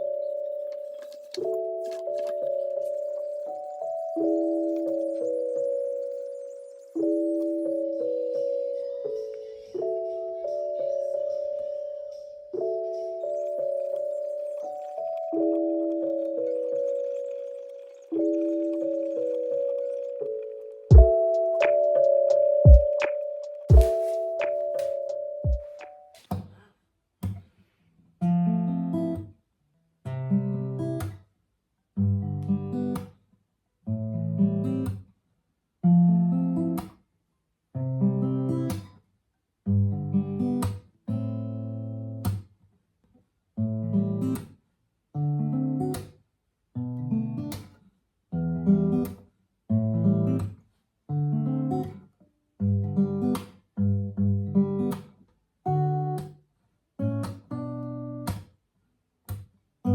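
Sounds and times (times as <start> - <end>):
acoustic guitar strummed chords: 20.9 - 26.5.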